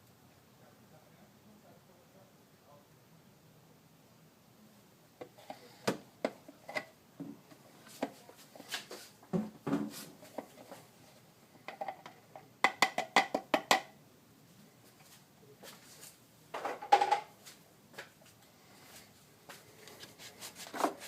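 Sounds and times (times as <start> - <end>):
plastic bottles clicking and knocking: 11.6 - 13.9.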